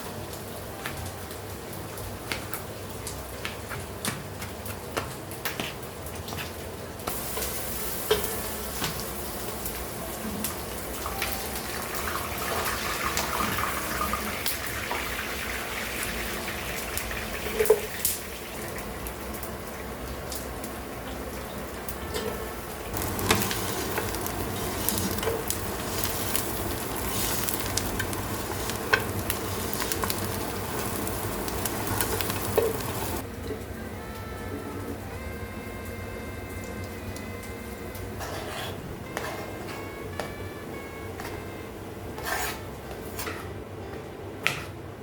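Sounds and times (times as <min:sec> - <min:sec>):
food sizzling in a pan: 0:07.0 - 0:33.2.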